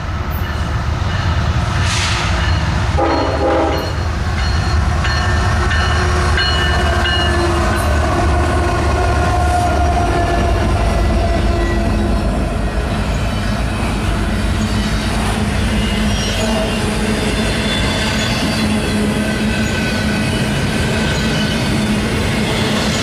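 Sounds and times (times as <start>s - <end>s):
diesel locomotive engine rumble: 0.0s - 23.0s
rail noise: 0.0s - 23.0s
train horn: 3.0s - 4.0s, 15.8s - 17.3s.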